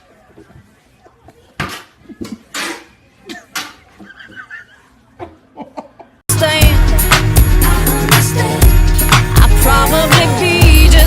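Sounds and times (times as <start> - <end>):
pop song with heavy bass: 6.3 - 11.0.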